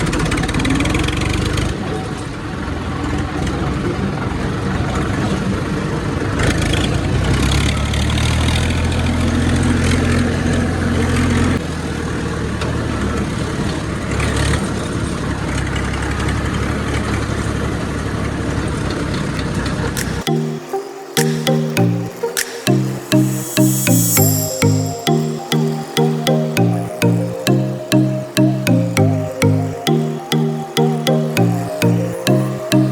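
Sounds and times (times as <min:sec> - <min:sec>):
music: 0:20.0 - 0:32.9.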